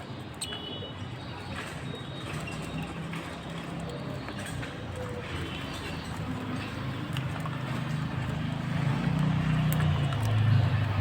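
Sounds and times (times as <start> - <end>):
low engine hum: 6.1 - 11.0.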